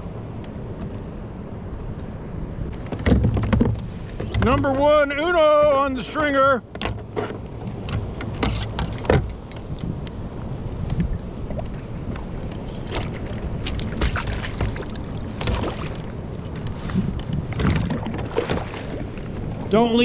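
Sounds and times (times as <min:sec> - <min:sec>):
water against hull: 0:00.0 - 0:20.0
wind on microphone: 0:07.3 - 0:20.0.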